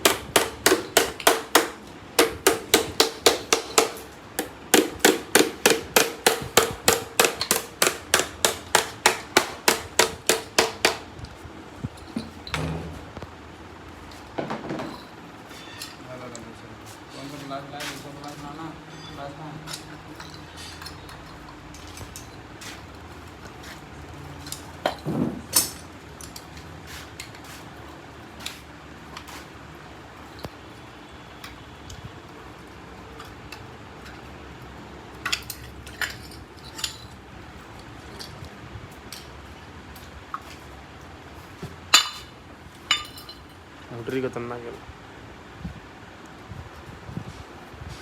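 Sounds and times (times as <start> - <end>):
hammer striking metal: 0.0 - 11.1
hand tools clinking on metal: 18.2 - 22.6, 35.2 - 37.2, 41.9 - 43.6.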